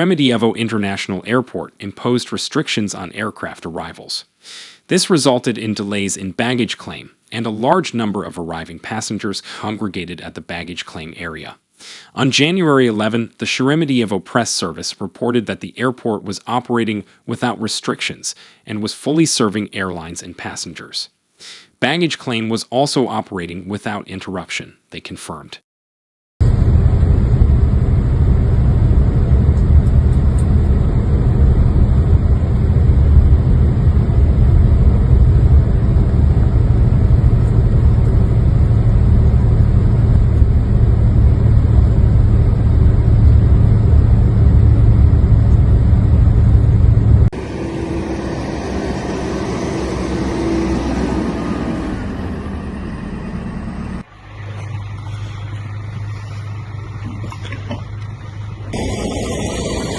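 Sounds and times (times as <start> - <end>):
steady tone: 26.4 - 59.9
vehicle engine rumbling: 26.4 - 59.9
traffic: 40.4 - 59.6.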